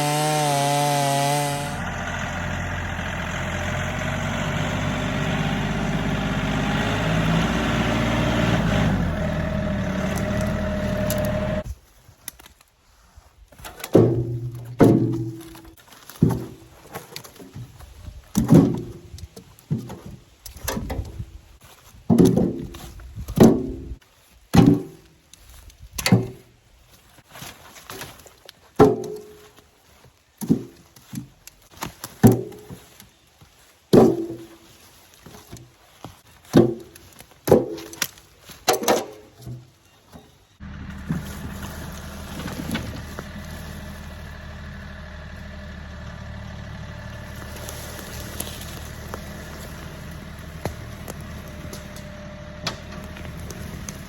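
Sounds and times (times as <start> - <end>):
engine running: 0.0 - 11.7, 40.6 - 54.0.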